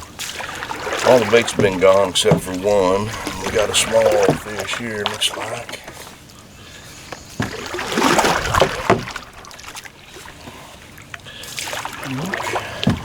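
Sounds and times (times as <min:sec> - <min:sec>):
water splashing and sloshing: 0:00.0 - 0:13.0
knocks against a kayak: 0:01.4 - 0:04.6, 0:07.4 - 0:09.2.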